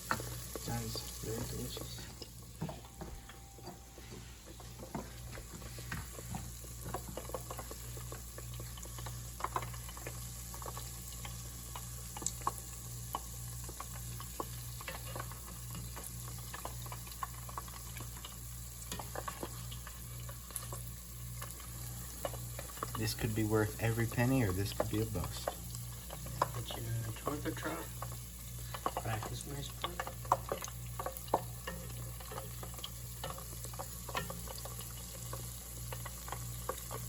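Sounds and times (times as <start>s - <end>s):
hot oil sizzling and popping: 0.0s - 37.0s.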